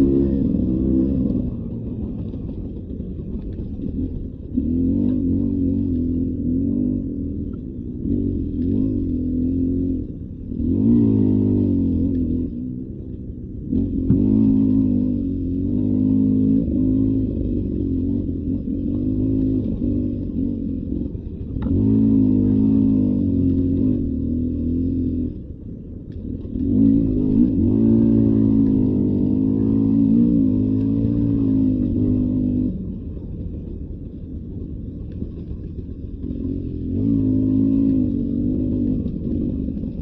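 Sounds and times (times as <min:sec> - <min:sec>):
dirt bike engine revving: 0:00.0 - 0:01.5, 0:13.7 - 0:20.7, 0:21.6 - 0:25.2, 0:26.6 - 0:32.7, 0:36.3 - 0:40.0.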